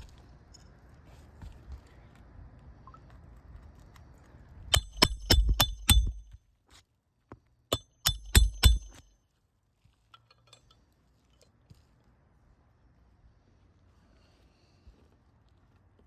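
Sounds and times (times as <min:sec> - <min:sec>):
hammer blows with metallic ring: 0:04.7 - 0:06.4, 0:07.7 - 0:09.1.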